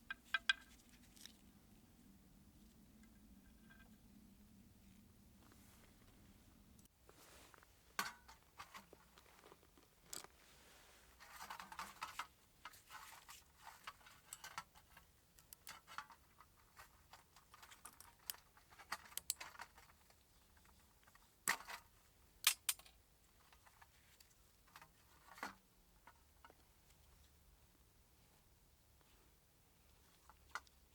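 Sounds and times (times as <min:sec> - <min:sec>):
rustling: 0:04.8 - 0:13.8
small parts clicking and clinking: 0:17.5 - 0:20.0, 0:22.4 - 0:23.0.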